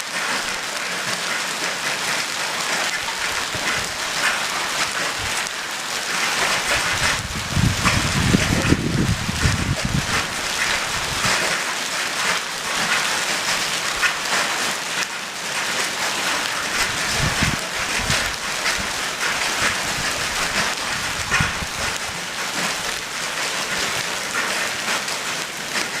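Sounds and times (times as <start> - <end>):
hail and rain falling hard: 0.0 - 26.0
low rumbles: 6.8 - 10.2.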